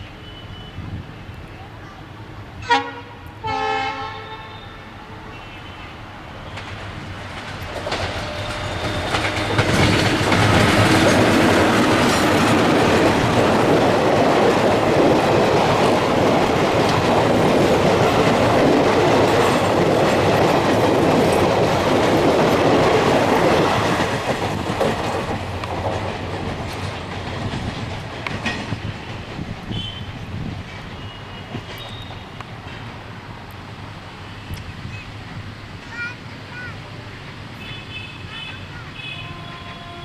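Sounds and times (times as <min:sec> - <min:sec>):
train passing at speed: 0:00.0 - 0:40.0
wheels clattering over rail joints: 0:06.4 - 0:33.6.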